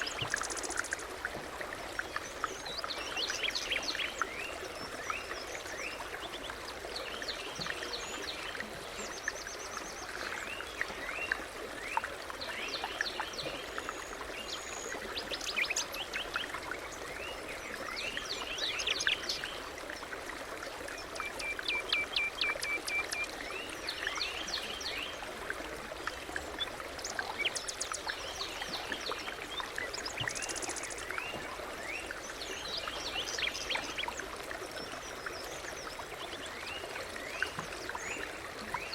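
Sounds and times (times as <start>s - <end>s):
songbirds singing and chirping: 0.0s - 20.1s, 20.9s - 25.3s, 26.0s - 38.9s.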